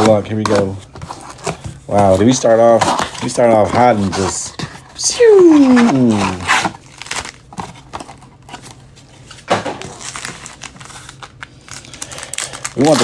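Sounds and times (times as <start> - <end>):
packaging crinkling and tearing: 0.0 - 13.0
loud packaging rip: 5.1 - 7.9, 9.5 - 13.0.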